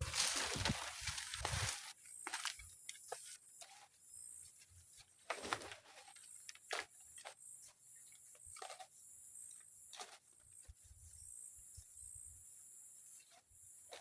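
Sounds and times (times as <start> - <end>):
rustles: 0.0 - 8.9.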